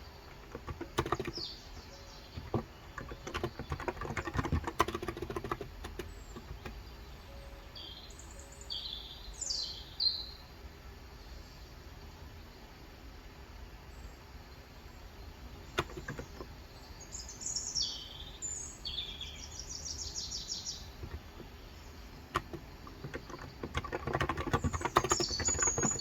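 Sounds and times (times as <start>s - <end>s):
bird chirping: 0.0s - 10.5s, 13.9s - 26.0s
keyboard typing: 0.3s - 6.8s, 15.7s - 16.6s, 20.9s - 21.5s, 22.1s - 26.0s.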